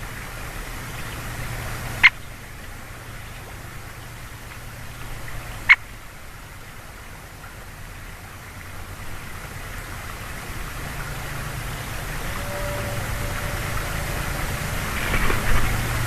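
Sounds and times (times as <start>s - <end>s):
steady rushing background noise: 8.6s - 16.0s
woodpecker call: 11.9s - 15.2s.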